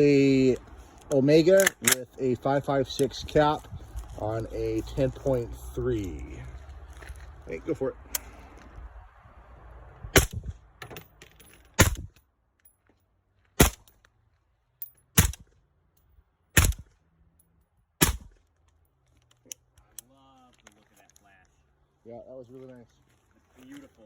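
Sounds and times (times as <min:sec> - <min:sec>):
suppressed rifle shots: 0:16.6 - 0:16.9, 0:18.0 - 0:18.4.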